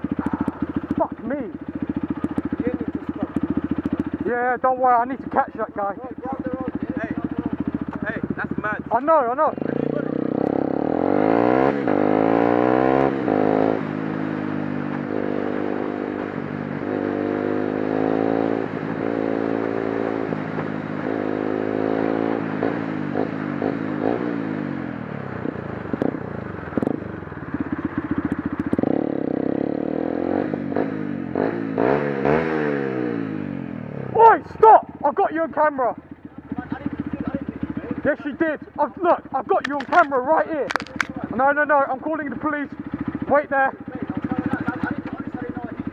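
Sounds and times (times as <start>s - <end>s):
motorcycle engine accelerating: 0.0s - 45.9s
clicks and clatters: 39.6s - 41.2s.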